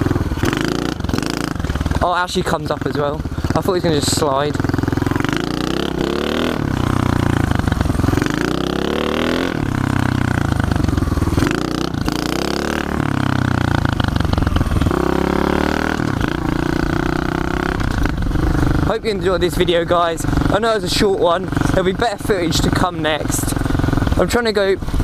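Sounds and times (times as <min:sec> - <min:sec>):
motorbike engine revving: 0:00.0 - 0:25.0.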